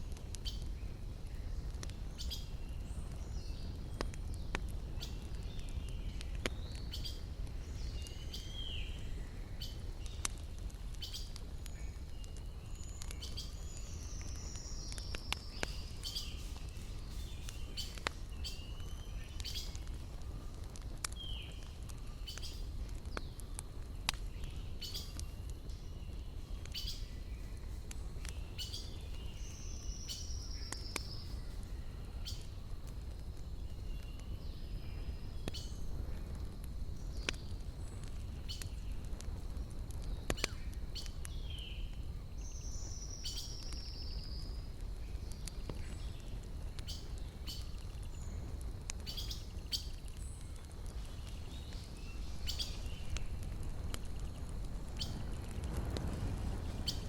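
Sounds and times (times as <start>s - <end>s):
campfire crackling and popping: 0.0s - 57.0s
steady low rumble: 44.7s - 57.0s.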